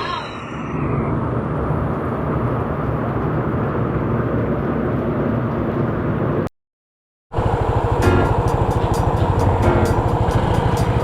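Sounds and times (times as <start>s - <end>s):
motor scooter engine drone: 7.3s - 11.0s.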